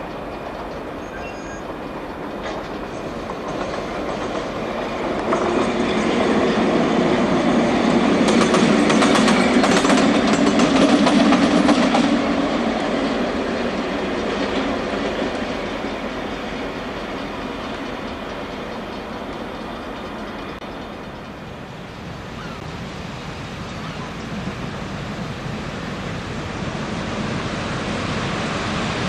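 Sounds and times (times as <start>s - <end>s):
wheels clicking over rail joints: 0.0s - 6.2s, 7.9s - 12.2s
diesel locomotive engine drone: 0.0s - 29.0s.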